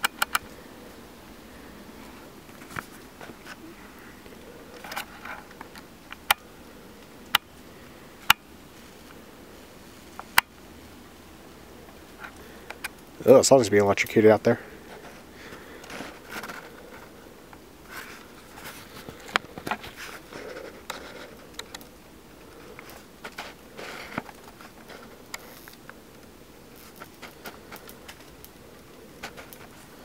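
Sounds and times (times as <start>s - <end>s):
bug zapper crackling and snapping: 0.0s - 0.6s, 4.7s - 7.6s, 8.2s - 8.5s, 10.1s - 10.6s, 15.8s - 28.6s.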